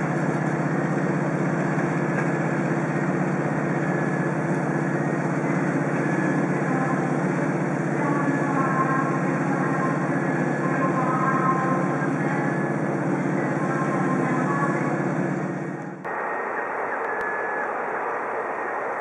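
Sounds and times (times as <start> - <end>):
train low drone: 0.0 - 19.0.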